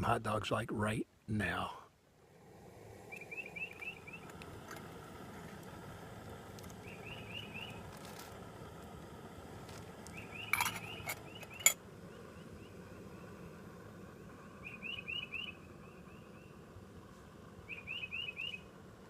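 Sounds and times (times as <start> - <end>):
bird chirping: 3.1 - 4.4, 6.8 - 7.8, 10.1 - 13.4, 14.6 - 16.6, 17.7 - 18.7.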